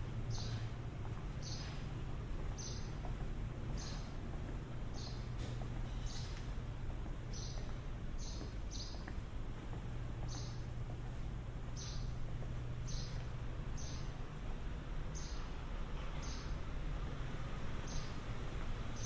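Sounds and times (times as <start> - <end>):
low hum: 0.0 - 19.0
small bird chirping: 0.3 - 0.8, 1.4 - 1.9, 2.5 - 4.2, 4.9 - 5.3, 7.3 - 9.1, 10.2 - 10.6, 11.7 - 12.2, 12.8 - 14.1, 15.1 - 15.5, 16.2 - 16.6, 17.8 - 18.2.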